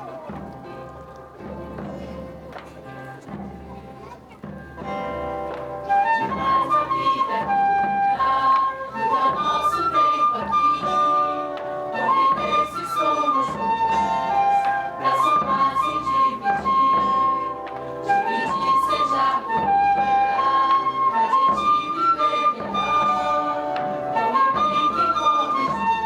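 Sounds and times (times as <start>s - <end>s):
flute melody of held notes: 4.8s - 26.0s.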